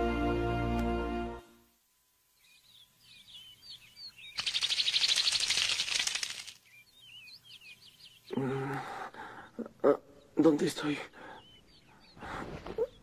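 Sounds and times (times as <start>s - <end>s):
small birds chirping: 2.2s - 13.0s
rapid wing flapping: 4.4s - 6.6s.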